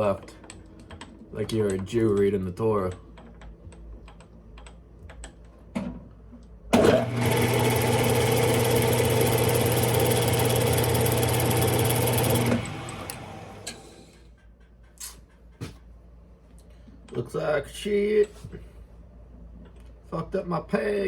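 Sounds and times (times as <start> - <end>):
lathe motor humming: 6.8 - 14.2.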